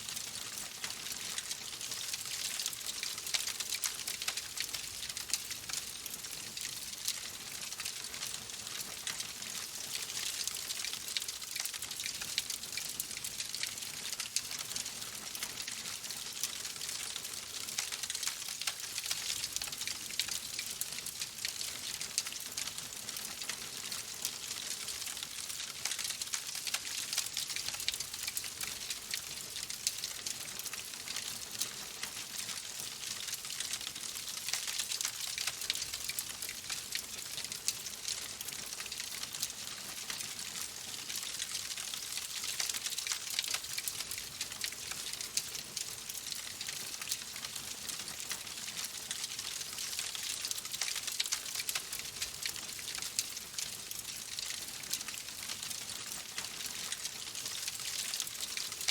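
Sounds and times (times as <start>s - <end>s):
wood fire crackling: 14.4s - 58.9s.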